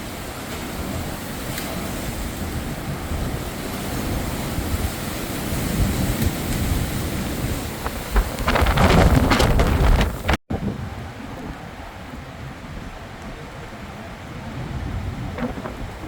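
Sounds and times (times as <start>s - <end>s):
storm wind and rain on microphone: 0.0s - 16.0s
sharp crackles: 7.6s - 10.4s.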